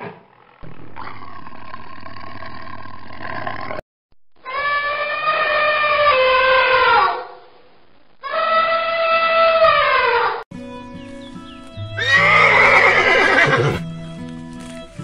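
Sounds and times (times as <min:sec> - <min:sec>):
elephant trumpeting: 0:04.4 - 0:07.4, 0:12.0 - 0:13.8.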